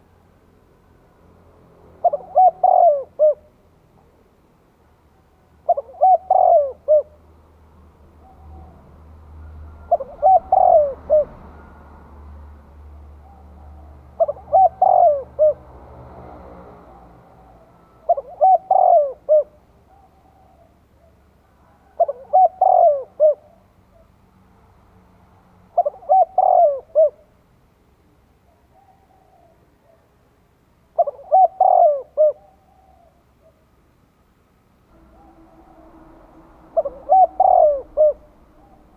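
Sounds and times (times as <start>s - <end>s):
dove cooing: 2.0s - 4.1s, 5.6s - 7.2s, 8.2s - 11.7s, 13.2s - 15.7s, 16.8s - 24.1s, 25.8s - 27.3s, 28.5s - 30.2s, 31.0s - 33.6s, 35.0s - 38.9s.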